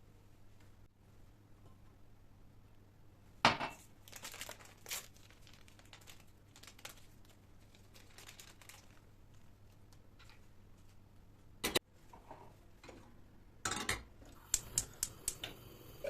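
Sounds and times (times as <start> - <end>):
packaging crinkling: 4.0 - 10.4.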